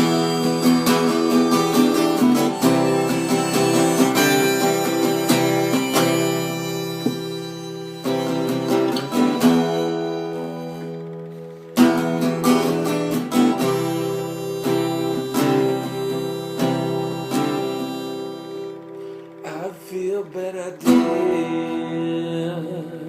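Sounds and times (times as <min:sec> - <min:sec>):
acoustic guitar strumming: 0:00.0 - 0:23.0
harmonica notes: 0:00.0 - 0:23.0.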